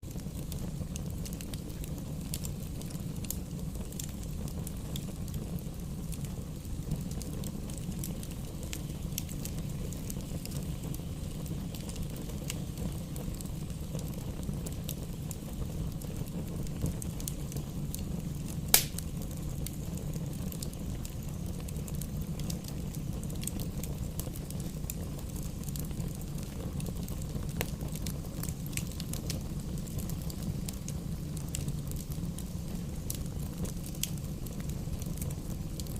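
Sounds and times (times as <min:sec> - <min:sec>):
fire crackles: 0:00.0 - 0:35.9
fire flames rumbling: 0:00.0 - 0:35.9
sharp pop of fire: 0:18.7 - 0:19.2.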